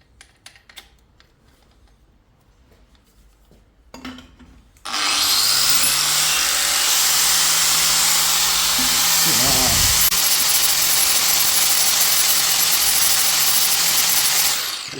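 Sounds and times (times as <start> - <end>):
power grinder motor: 4.9 - 14.9.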